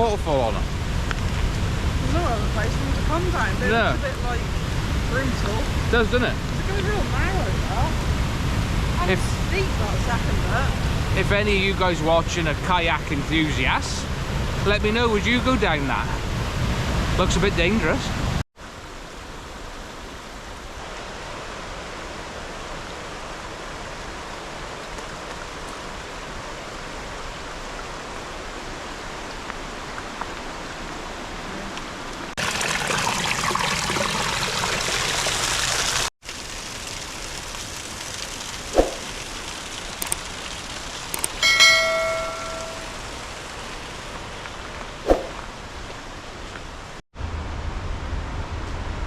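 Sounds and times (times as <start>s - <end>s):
rushing river and waterfall: 0.0s - 32.5s, 36.7s - 47.0s
brief ringing tone: 41.4s - 43.0s.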